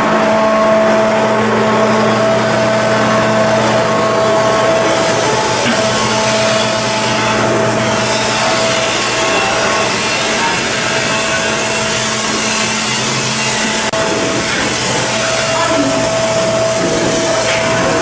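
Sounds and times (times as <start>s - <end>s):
loud machinery noise: 0.0s - 18.0s
steady tones: 0.0s - 18.0s.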